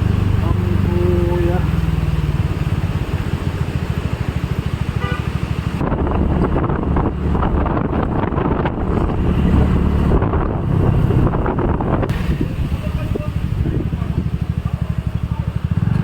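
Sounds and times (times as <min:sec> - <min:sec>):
vehicle engine running: 0:00.0 - 0:16.0
wind buffeting microphone: 0:05.5 - 0:15.0.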